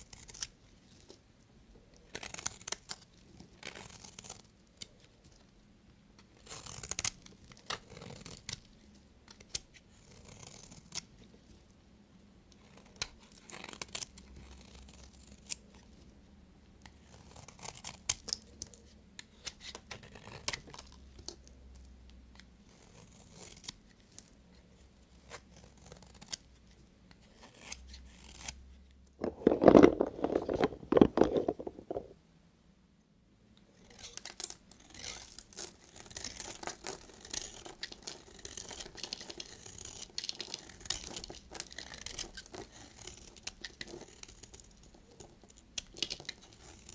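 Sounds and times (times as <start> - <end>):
knife cutting soap: 0.0 - 1.2, 2.0 - 5.1, 6.2 - 11.5, 16.8 - 24.4, 27.1 - 28.6, 33.8 - 46.9.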